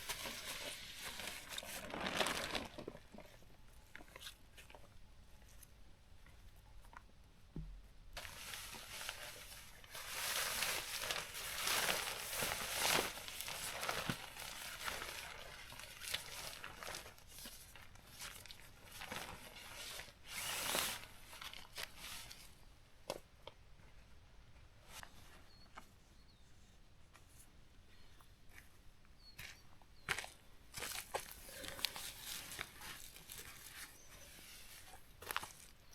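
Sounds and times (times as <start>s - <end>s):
tent fabric rustling and crinkling: 0.0s - 4.8s, 8.2s - 22.6s, 30.2s - 35.9s.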